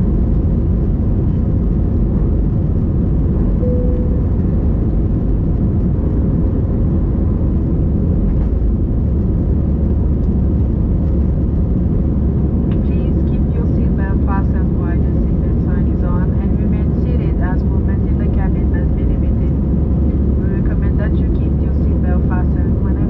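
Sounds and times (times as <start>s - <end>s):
airplane cabin engine noise: 0.0s - 23.0s
faint tone: 3.6s - 5.2s.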